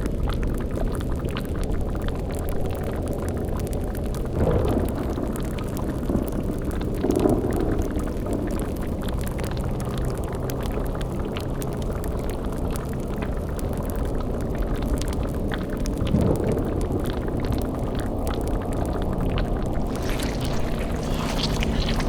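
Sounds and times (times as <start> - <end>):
bubbling boiling cauldron: 0.0 - 22.0
light crackling: 19.6 - 22.0
low rumble: 19.6 - 22.0.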